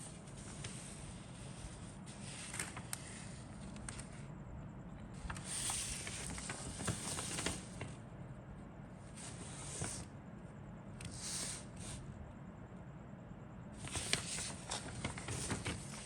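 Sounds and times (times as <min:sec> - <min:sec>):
low steady hum: 0:00.0 - 0:16.0
plastic and paper crinkling: 0:05.2 - 0:08.0, 0:13.8 - 0:16.0.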